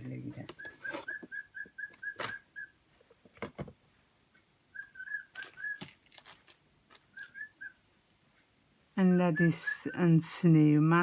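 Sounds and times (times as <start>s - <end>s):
bird chirping whistle-like notes: 0.6s - 2.8s, 4.7s - 5.9s, 7.1s - 7.8s.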